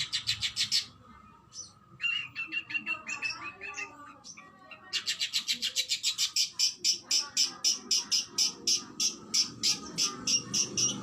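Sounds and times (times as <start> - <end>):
rapid sharp bird notes: 5.1 - 11.0.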